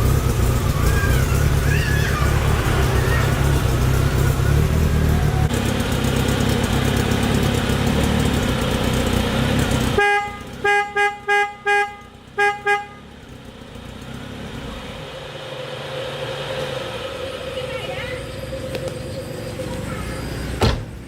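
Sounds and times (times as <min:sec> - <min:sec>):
car engine running: 0:00.0 - 0:10.7
car horn toots: 0:10.0 - 0:13.1.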